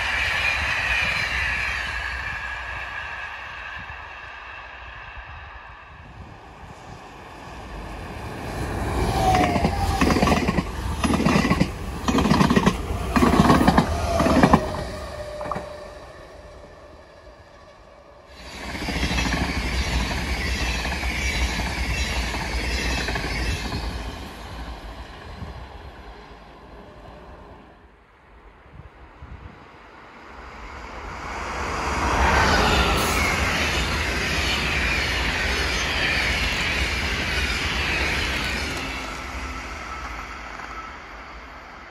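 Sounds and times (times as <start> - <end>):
train rushing past with hiss: 0.0 - 41.9
train wheels thumping: 9.2 - 15.8.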